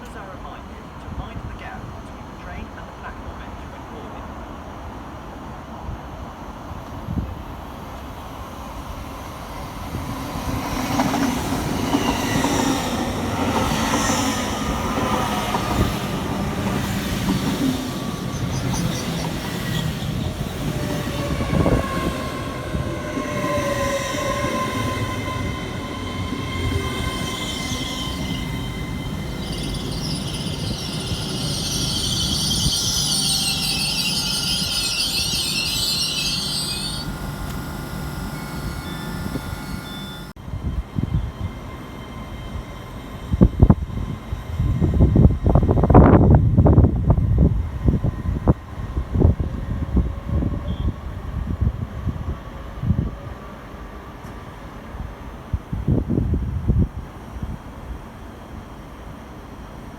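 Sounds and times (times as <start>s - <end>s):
electric train whining: 0.0s - 51.9s
high metallic squeal: 17.8s - 40.4s.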